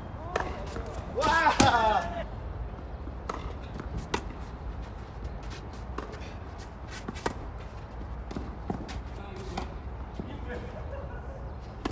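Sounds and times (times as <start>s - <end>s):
light knocks and scuffs: 3.2s - 10.8s.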